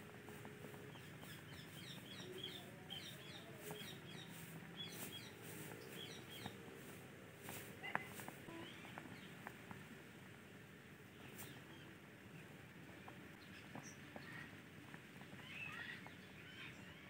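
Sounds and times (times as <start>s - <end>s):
faint bird chirping: 0.3s - 6.9s, 7.9s - 9.5s, 15.3s - 17.0s.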